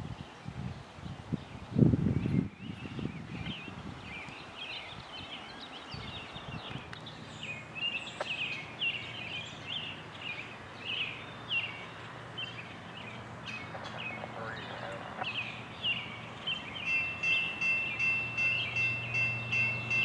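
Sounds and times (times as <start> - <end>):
birds chirping: 1.5 - 20.0.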